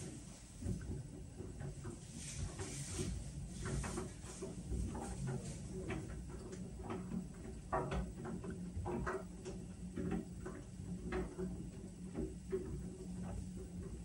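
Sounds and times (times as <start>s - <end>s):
clicks and knocks from turning drum: 0.0s - 14.0s
washing machine motor hum: 0.0s - 14.0s.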